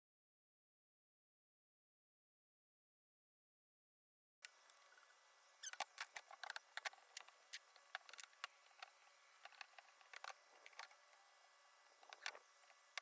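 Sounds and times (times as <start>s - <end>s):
small irregular clicks: 5.6s - 11.2s, 12.0s - 13.0s.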